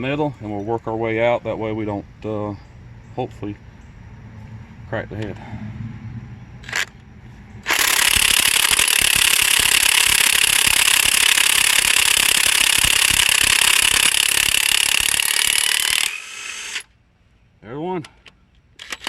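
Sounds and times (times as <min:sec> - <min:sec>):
impact wrench hammering: 0:07.6 - 0:16.2.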